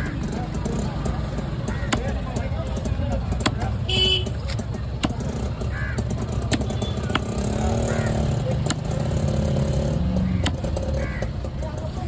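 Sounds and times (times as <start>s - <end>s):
vehicle engine running: 0.0s - 12.0s
sharp knocks: 5.0s - 11.3s.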